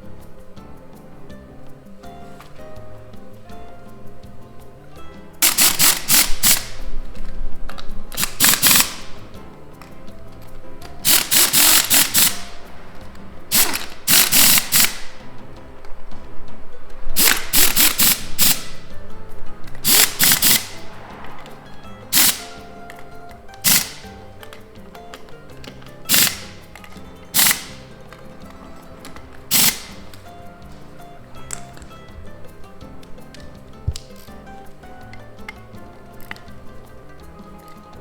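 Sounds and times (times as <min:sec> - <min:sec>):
soft background music: 0:00.0 - 0:38.0
impact wrench hammering: 0:05.4 - 0:06.9, 0:08.2 - 0:09.4, 0:10.8 - 0:12.7, 0:13.5 - 0:15.3, 0:17.2 - 0:18.9, 0:19.8 - 0:21.0, 0:22.1 - 0:22.8, 0:23.6 - 0:24.6, 0:26.0 - 0:28.0, 0:29.0 - 0:30.4.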